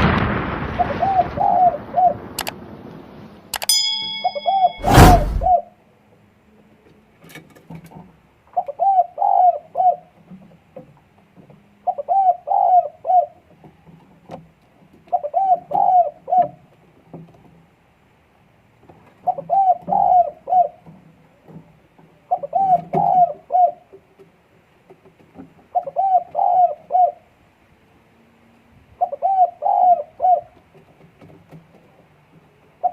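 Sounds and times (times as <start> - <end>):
dove cooing: 0.8 - 2.2, 8.6 - 10.1, 11.8 - 13.4, 15.1 - 16.6, 19.2 - 20.9, 22.3 - 23.9, 25.7 - 27.2, 29.0 - 30.6.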